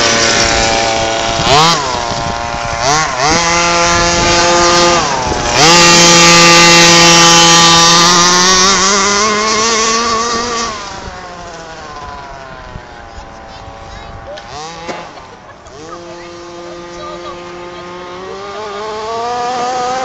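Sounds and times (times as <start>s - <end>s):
toy car motor whining: 0.0s - 20.0s.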